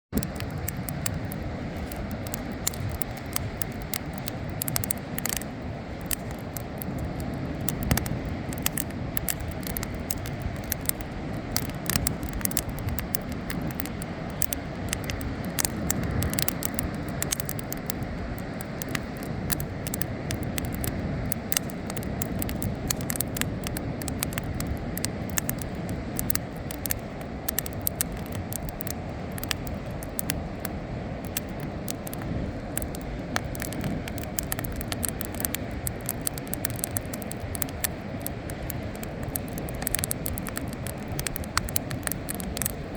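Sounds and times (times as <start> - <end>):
bonfire crackling and popping: 0.1 - 42.9
low fire rumble: 0.1 - 42.9.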